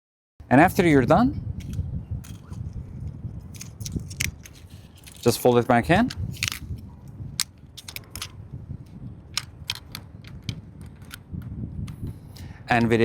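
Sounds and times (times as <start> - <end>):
selfie stick and tripod folding clicks: 1.6 - 2.8, 3.5 - 12.0.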